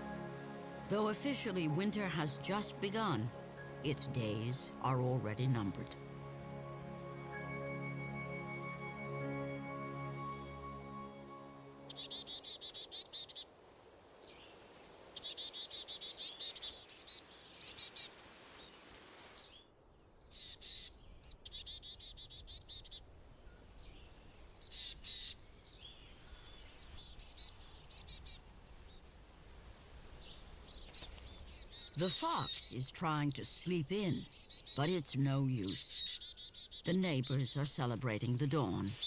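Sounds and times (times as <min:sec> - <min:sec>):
songbird trills: 0:11.9 - 0:13.5, 0:14.2 - 0:29.2, 0:30.2 - 0:39.0.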